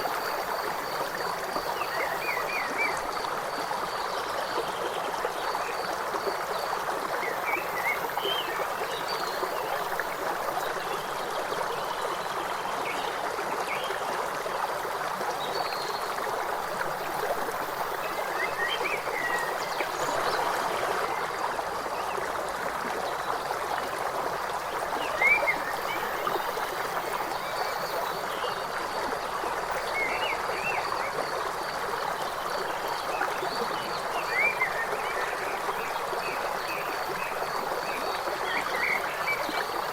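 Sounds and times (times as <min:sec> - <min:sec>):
river water rushing: 0:16.6 - 0:27.3.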